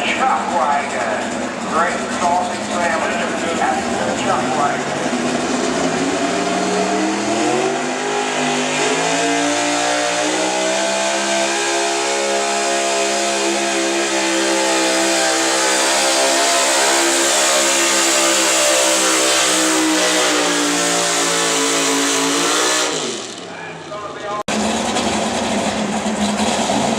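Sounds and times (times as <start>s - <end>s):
pickup engine at full throttle: 0.0s - 23.6s, 24.5s - 26.9s.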